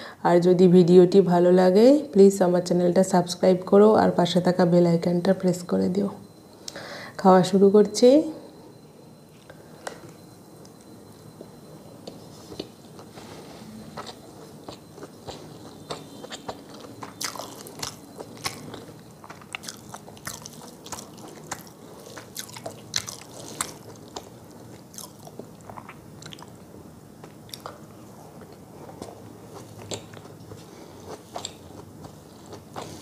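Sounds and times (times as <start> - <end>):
person chewing food: 12.0 - 33.0
crisp crunches: 16.8 - 24.3.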